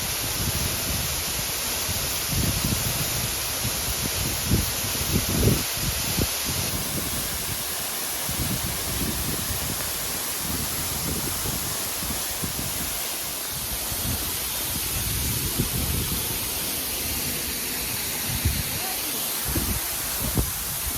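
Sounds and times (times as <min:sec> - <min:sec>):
waterfall roaring: 0:00.0 - 0:20.9
wind buffeting microphone: 0:01.9 - 0:13.0, 0:13.6 - 0:16.5, 0:19.4 - 0:20.9.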